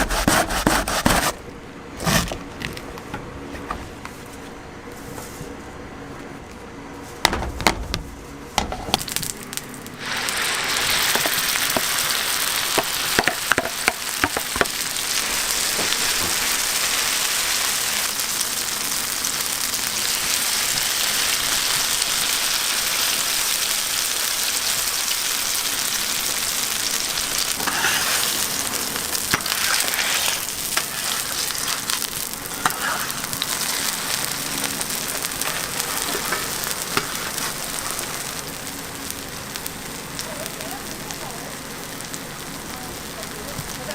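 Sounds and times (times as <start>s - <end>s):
pancake sizzling in oil: 9.0s - 43.9s.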